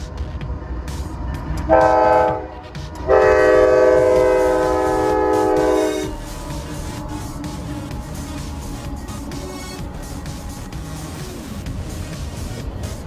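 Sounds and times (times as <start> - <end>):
train rumbling past: 0.0 - 13.0
locomotive air horn blasts: 1.7 - 7.4.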